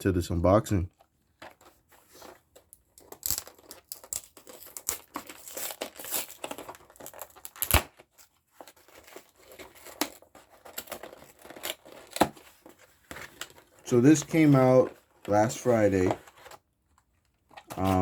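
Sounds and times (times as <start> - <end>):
packaging tearing and crinkling: 1.6 - 14.8.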